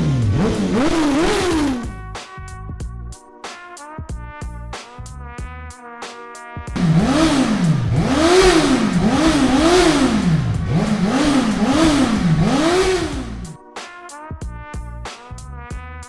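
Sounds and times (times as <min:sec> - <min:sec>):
motorcycle engine revving: 0:00.0 - 0:02.0, 0:06.8 - 0:13.6.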